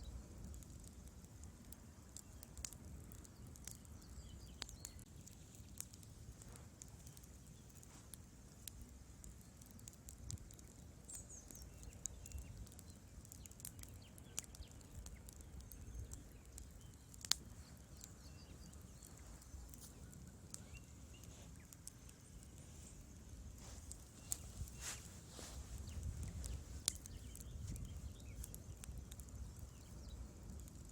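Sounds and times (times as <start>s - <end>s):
wood fire crackling: 0.0s - 30.9s.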